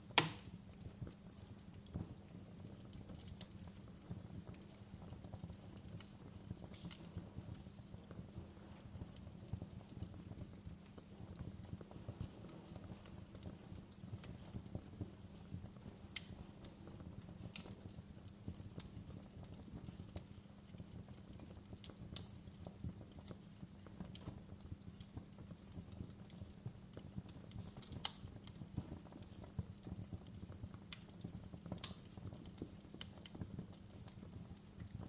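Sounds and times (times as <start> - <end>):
fire crackling and popping: 0.0 - 35.0
low rumble of flames: 0.0 - 35.0.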